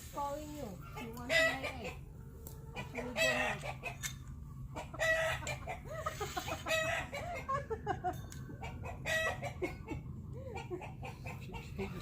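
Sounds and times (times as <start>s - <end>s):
chickens clucking: 0.2s - 12.0s.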